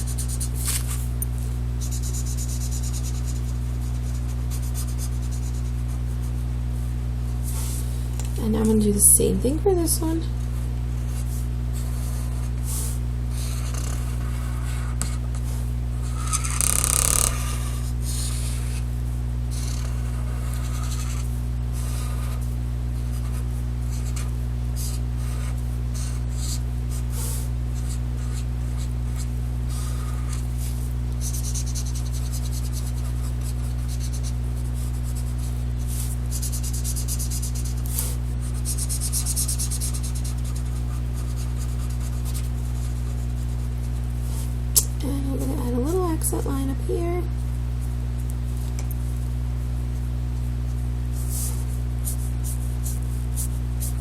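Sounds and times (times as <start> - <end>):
marker scratching on paper: 0.0 - 1.0, 1.8 - 6.4, 11.1 - 18.8, 19.5 - 44.6, 51.2 - 54.0
steady low hum: 0.0 - 54.0.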